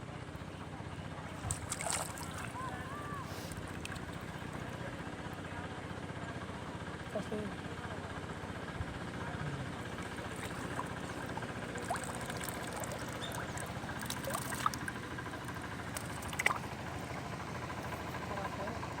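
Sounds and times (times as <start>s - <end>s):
low motor hum: 0.0s - 19.0s
hands splashing in water: 1.4s - 2.6s, 9.9s - 15.1s, 15.9s - 16.9s.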